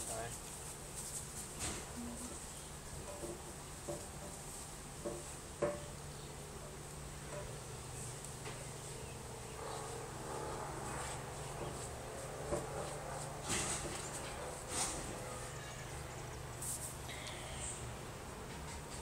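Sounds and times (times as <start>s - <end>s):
low drone from the sky: 9.0s - 15.4s.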